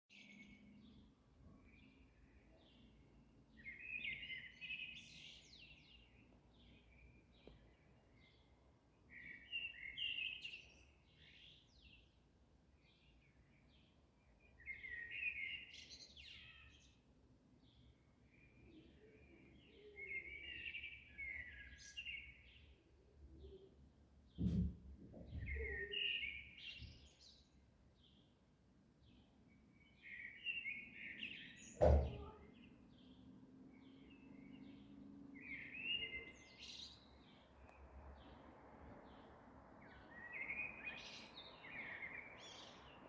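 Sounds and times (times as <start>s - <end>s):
songbirds chirping: 0.1s - 43.0s
low thump: 24.4s - 25.8s, 31.8s - 32.3s
sharp knock: 31.8s - 32.3s.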